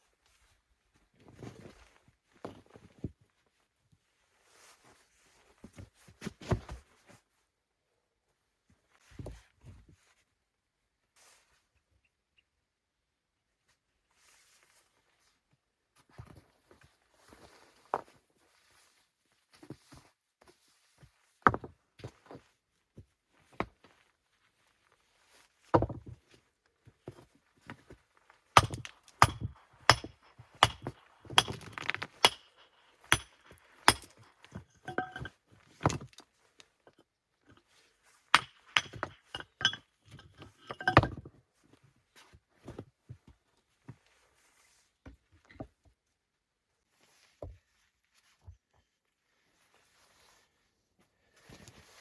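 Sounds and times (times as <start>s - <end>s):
hard objects knocking and clinking: 28.6s - 36.2s, 38.4s - 41.2s.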